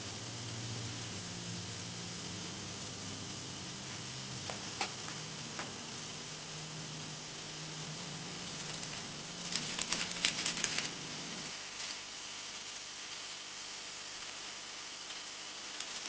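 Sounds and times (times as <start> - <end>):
low hum: 0.0 - 11.5
steady hiss: 0.0 - 16.0.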